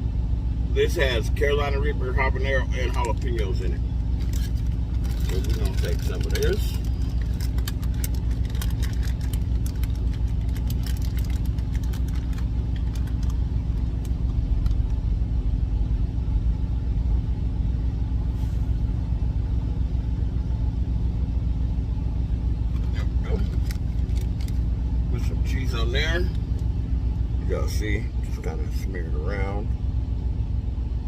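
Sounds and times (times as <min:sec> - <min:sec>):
truck engine idling: 0:00.0 - 0:31.0.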